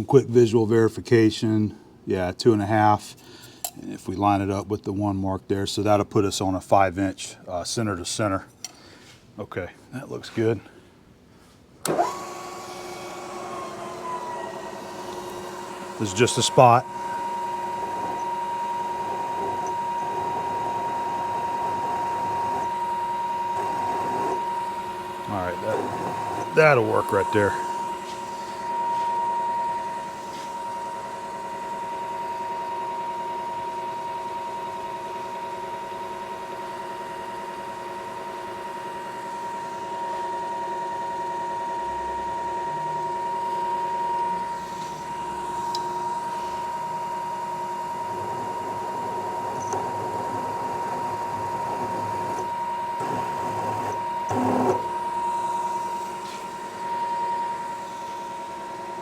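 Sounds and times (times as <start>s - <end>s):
milling machine whining: 11.8s - 36.8s, 37.7s - 59.0s.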